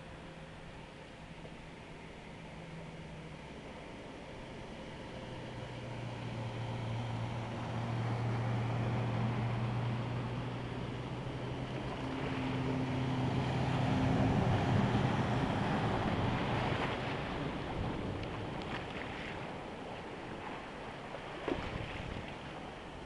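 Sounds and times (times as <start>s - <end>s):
vehicle engine hum: 0.0s - 23.0s
water splashing: 8.2s - 23.0s.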